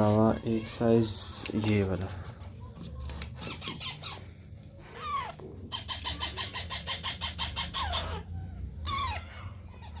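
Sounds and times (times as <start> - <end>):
parrot chicks chirping: 2.8 - 10.0
parrot squawks: 4.9 - 10.0.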